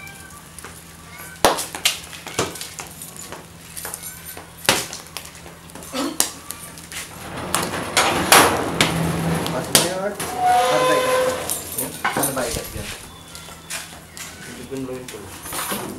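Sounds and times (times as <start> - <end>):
meat popping and crackling: 0.0 - 7.7
grill hissing: 4.5 - 15.4
faint voices: 9.5 - 15.4.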